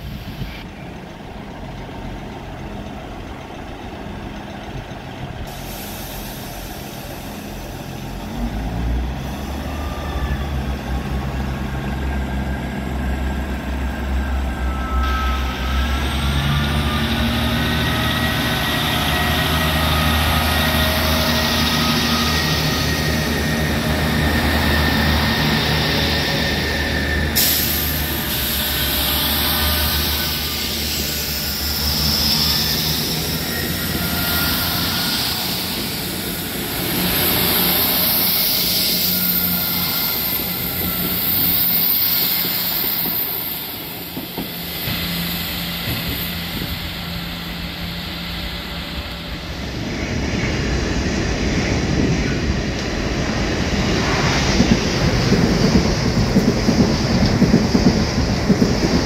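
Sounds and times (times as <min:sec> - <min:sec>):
train running noise: 0:00.0 - 0:59.0
hiss: 0:05.5 - 0:10.4, 0:20.2 - 0:49.3
rising whining tones: 0:09.1 - 0:51.4.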